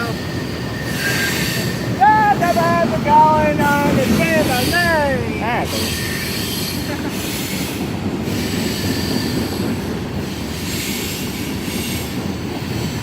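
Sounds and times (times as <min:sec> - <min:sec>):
faint high wheel squeal: 0:00.0 - 0:02.0
train wheels rumbling on rail: 0:00.0 - 0:13.0.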